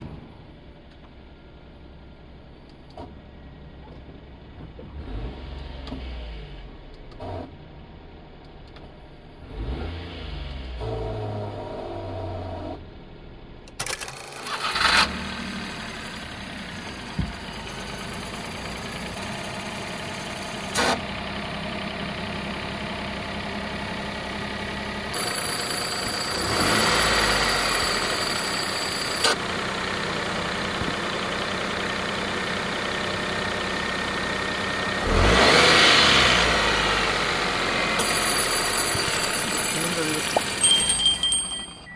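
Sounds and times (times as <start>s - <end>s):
engine idling: 12.1s - 41.9s.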